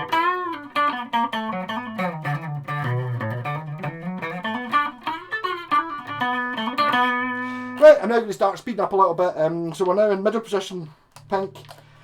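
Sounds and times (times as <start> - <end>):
electric guitar lick: 0.0 - 8.3.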